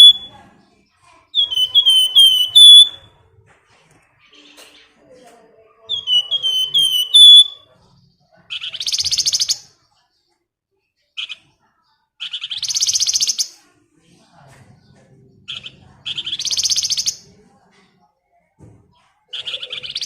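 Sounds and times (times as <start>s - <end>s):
songbird rattling trill: 1.4s - 3.0s, 5.9s - 7.6s.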